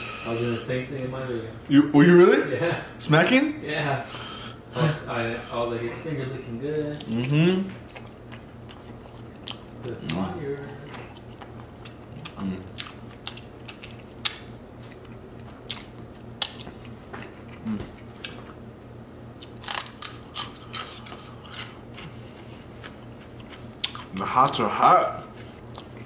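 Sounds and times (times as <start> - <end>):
chewing and lip-smacking: 6.5 - 18.6, 19.4 - 26.0.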